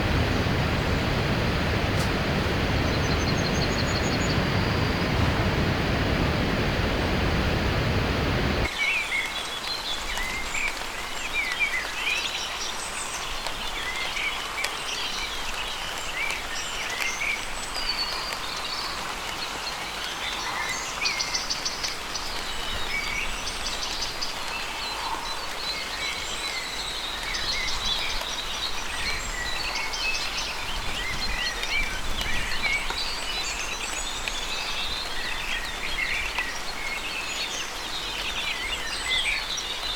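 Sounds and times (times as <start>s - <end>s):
dense rushing noise: 0.0s - 8.7s
steady hiss: 0.0s - 8.7s.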